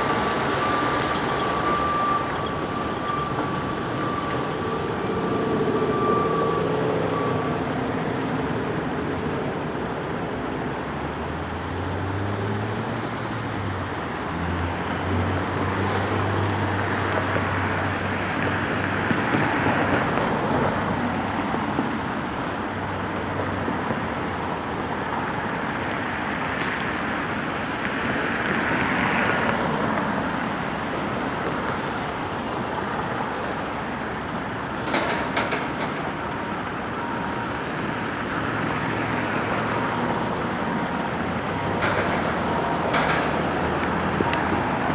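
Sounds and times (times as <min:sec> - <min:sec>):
sharp knocks and clatter: 0:41.8 - 0:44.0.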